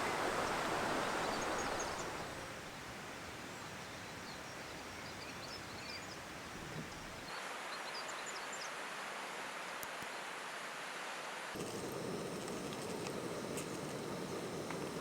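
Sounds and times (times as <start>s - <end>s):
stream rushing: 0.0s - 2.8s, 8.8s - 15.0s.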